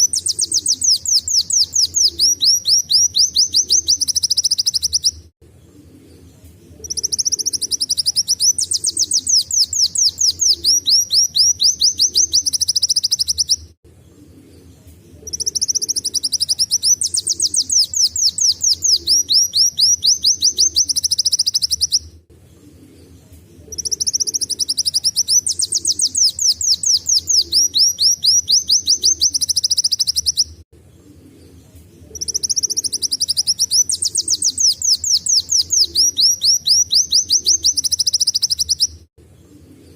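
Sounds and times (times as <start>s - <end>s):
bird singing high trills: 0.0s - 5.3s, 6.8s - 13.8s, 15.2s - 22.1s, 23.7s - 30.6s, 32.1s - 39.1s.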